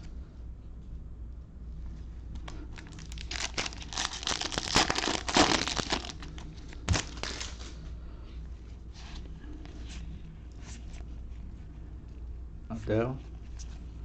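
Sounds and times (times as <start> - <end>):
foil wrapper crinkling and tearing: 2.5 - 7.8.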